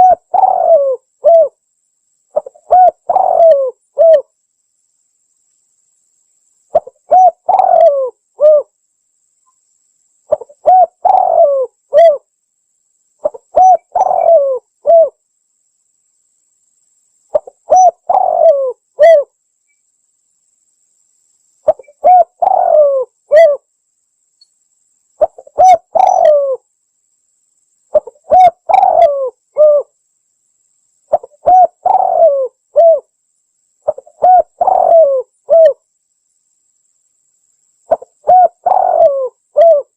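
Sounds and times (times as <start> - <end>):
dove cooing: 0.0 - 1.6, 2.3 - 4.3, 6.7 - 8.7, 10.3 - 12.3, 13.2 - 15.2, 17.3 - 19.3, 21.6 - 23.7, 25.2 - 26.6, 27.9 - 29.9, 31.1 - 33.1, 33.8 - 35.8, 37.9 - 39.9.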